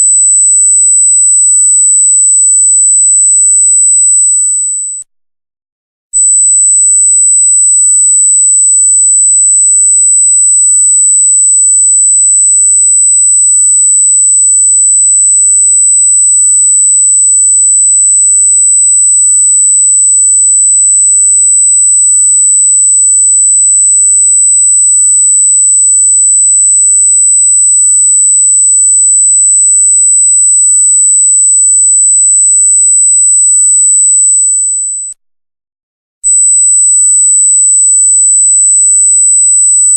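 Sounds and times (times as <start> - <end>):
piercing electronic tone: 31.7 - 35.1, 36.3 - 39.9.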